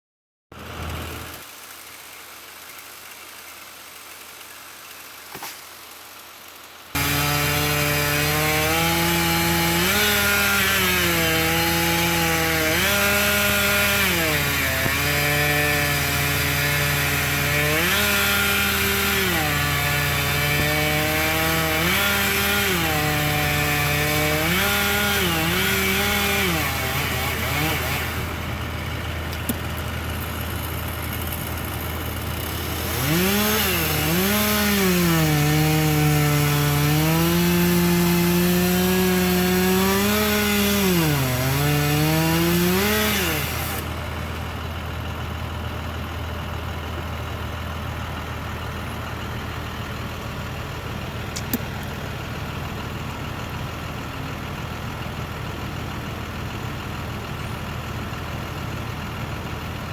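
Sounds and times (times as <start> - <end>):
chainsaw revving and cutting: 0.6 - 44.7, 51.3 - 52.0
low steady engine hum: 26.4 - 33.0, 43.6 - 59.9.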